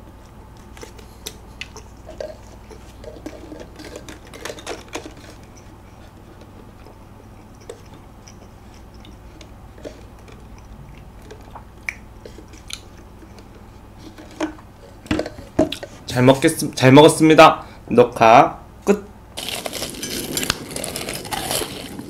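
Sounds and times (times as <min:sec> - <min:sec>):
close chewing: 0:00.1 - 0:14.2
wet mouth clicks: 0:01.2 - 0:02.0, 0:07.4 - 0:13.5.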